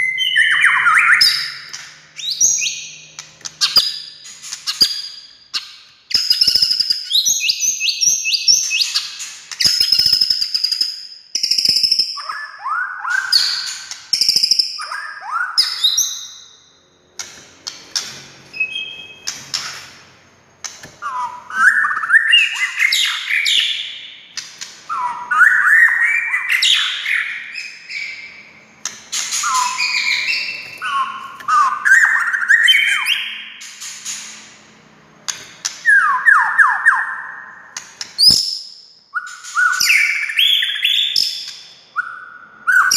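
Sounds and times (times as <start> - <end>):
bird singing whistled phrases: 0.0 - 3.0, 3.6 - 16.6, 18.5 - 19.3, 21.0 - 24.2, 24.9 - 28.4, 29.4 - 33.6, 35.8 - 37.6, 38.2 - 42.9.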